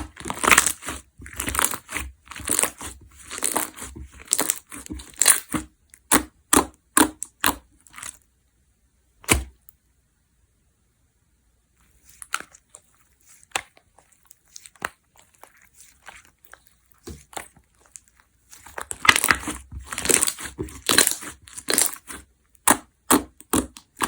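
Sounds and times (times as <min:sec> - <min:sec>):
slime squeezed with wet pops: 0:12.1 - 0:24.0.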